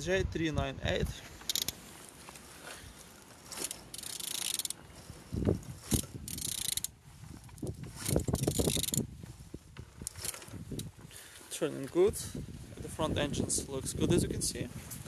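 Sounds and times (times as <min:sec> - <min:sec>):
ratchet wrench clicking: 0:01.5 - 0:01.8, 0:03.5 - 0:04.8, 0:05.8 - 0:06.9, 0:07.9 - 0:09.0.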